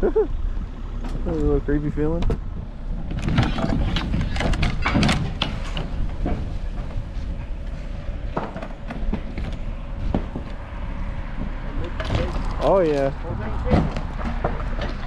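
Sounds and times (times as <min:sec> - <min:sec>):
steady low rumble: 0:00.0 - 0:15.0
sharp knocks and clatters: 0:02.2 - 0:07.4, 0:08.3 - 0:10.6, 0:11.3 - 0:15.0.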